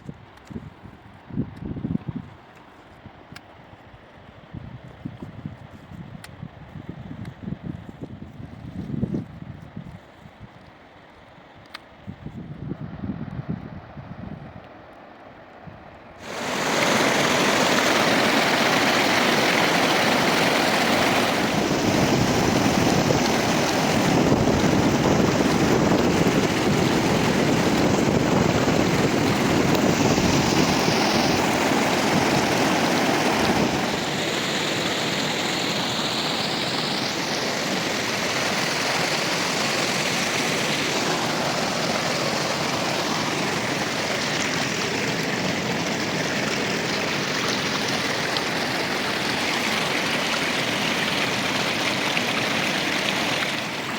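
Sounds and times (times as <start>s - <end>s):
river water rushing: 16.2s - 53.9s.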